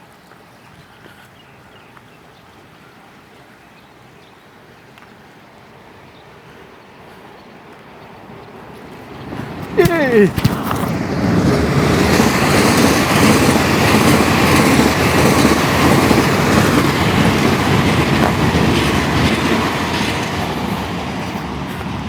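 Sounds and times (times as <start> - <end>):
train wheels clattering on rails: 8.4 - 22.0.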